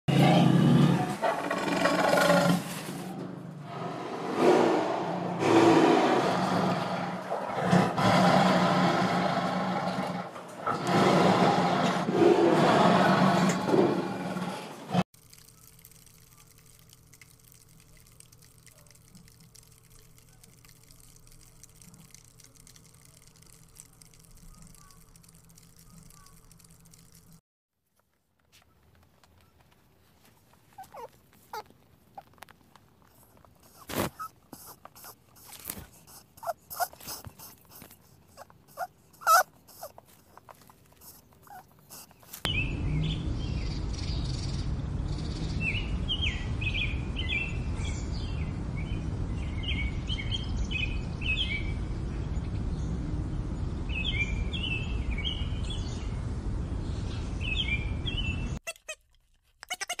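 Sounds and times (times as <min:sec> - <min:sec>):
small birds chirping: 0:15.2 - 0:27.4, 0:28.6 - 0:32.3, 0:33.1 - 0:53.0.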